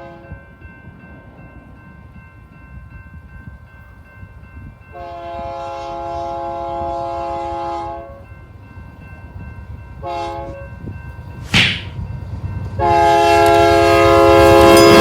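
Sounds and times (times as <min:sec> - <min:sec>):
train rumbling: 0:00.0 - 0:15.0
locomotive air horn blast: 0:05.0 - 0:08.2, 0:10.0 - 0:10.6, 0:12.8 - 0:15.0.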